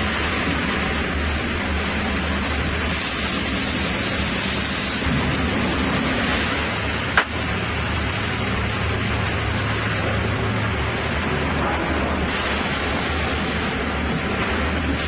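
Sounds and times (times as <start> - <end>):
bright hiss: 2.7 - 5.6.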